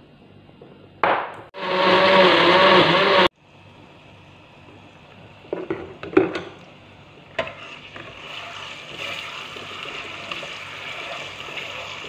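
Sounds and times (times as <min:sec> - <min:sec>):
batter sizzling in hot oil: 0:04.0 - 0:12.0.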